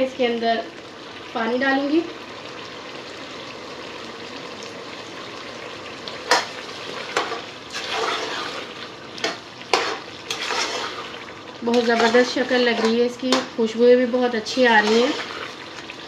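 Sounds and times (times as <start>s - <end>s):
potatoes sizzling in oil: 0.0s - 16.0s
spoon scraping and knocking pot: 9.2s - 10.9s.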